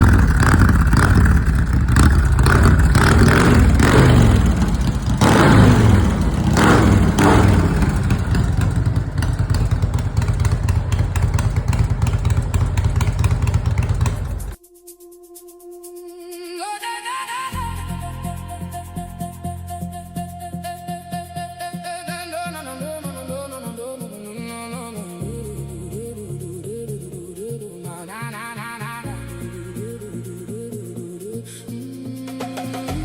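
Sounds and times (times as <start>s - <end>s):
motorcycle engine revving: 0.0s - 14.6s.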